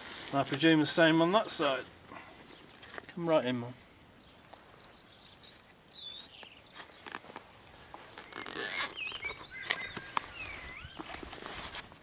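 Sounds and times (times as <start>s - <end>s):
small birds chirping: 2.1s - 3.4s, 4.2s - 11.4s
fabric pouch rustling and clicking: 6.3s - 12.0s.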